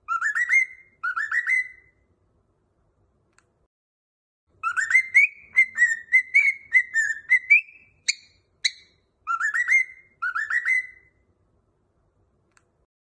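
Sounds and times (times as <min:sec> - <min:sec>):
cockatiel whistling: 0:00.0 - 0:02.0, 0:04.6 - 0:11.2
sharp bird chirps: 0:00.0 - 0:02.0, 0:04.6 - 0:11.2.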